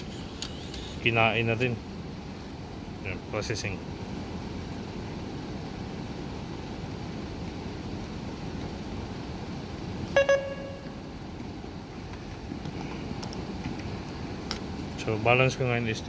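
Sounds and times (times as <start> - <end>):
steady background hum: 0.0 - 16.0
machine beeps: 10.1 - 11.0.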